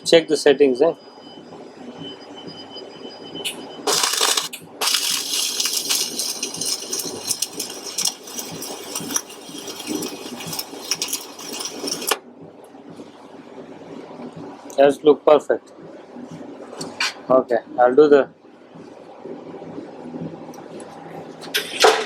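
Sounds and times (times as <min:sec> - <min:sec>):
arc welding crackle: 0:03.9 - 0:12.2.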